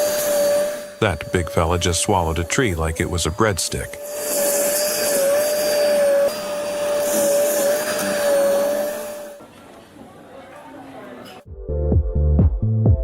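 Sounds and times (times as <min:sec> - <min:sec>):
machine whining: 0:00.0 - 0:09.5.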